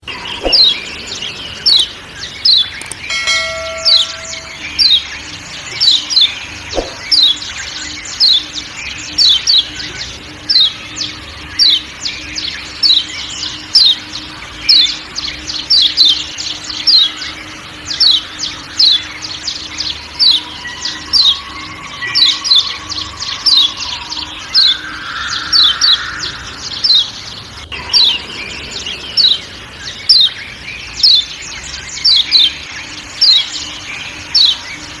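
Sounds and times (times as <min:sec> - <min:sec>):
forest background sounds: 0:00.0 - 0:35.0
white-eye sharp chirping call: 0:15.7 - 0:30.4.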